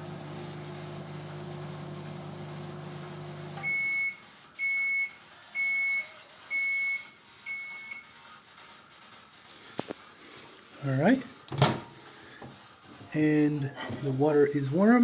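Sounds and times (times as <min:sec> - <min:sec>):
microwave oven humming: 0:00.0 - 0:04.8.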